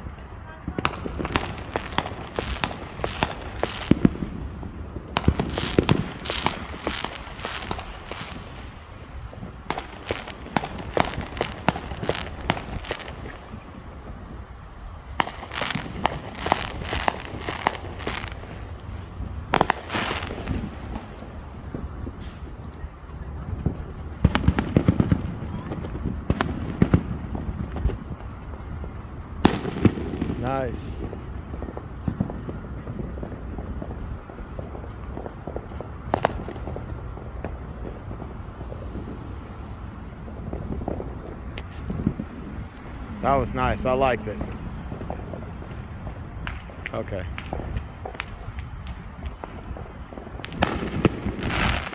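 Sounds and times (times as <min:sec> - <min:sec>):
fireworks bangs: 0:00.0 - 0:51.9
low background rumble: 0:37.8 - 0:51.9.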